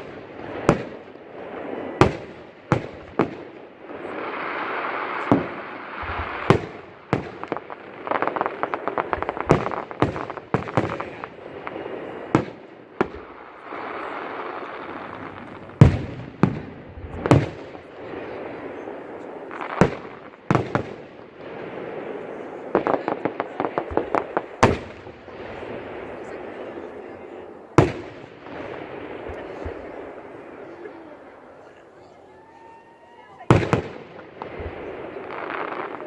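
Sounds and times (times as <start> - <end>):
fireworks crackling hiss: 0.0 - 36.0.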